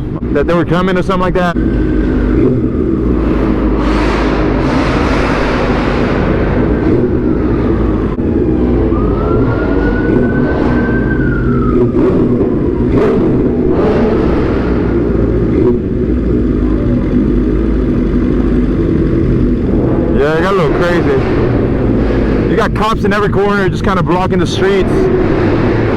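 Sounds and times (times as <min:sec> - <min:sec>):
road and wind noise: 0:00.0 - 0:25.9
motorcycle engine running: 0:01.6 - 0:25.9
police siren wailing: 0:05.6 - 0:15.4, 0:19.6 - 0:25.9.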